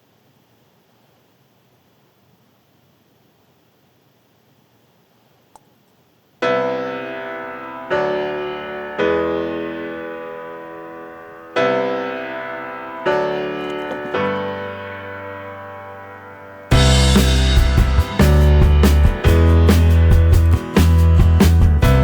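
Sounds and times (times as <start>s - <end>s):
faint click: 5.4s - 5.7s
slow piano chords: 6.4s - 22.0s.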